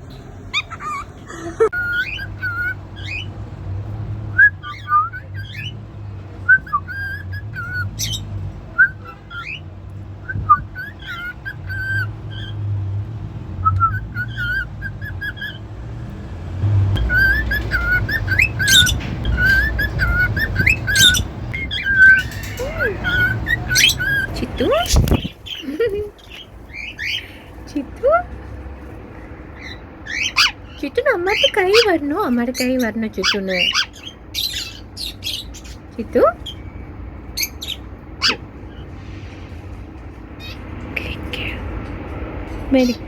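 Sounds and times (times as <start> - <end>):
cockatiel whistling: 1.7 - 3.3, 4.4 - 5.7, 6.5 - 8.2, 10.2 - 12.5, 13.6 - 15.6, 17.0 - 25.3.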